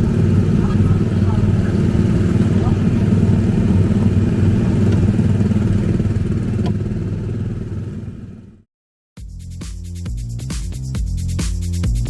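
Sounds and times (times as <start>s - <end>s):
small engine running: 0.0s - 8.7s.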